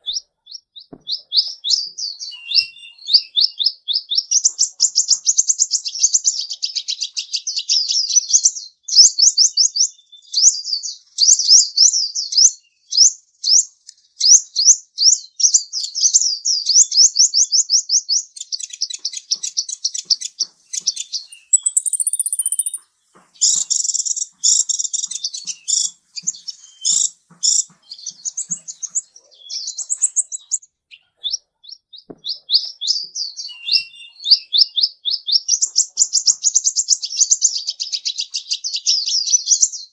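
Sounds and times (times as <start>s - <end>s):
small bird chirping: 0.0s - 39.9s
high bird whistle: 0.9s - 3.5s, 20.8s - 22.8s, 32.1s - 34.8s.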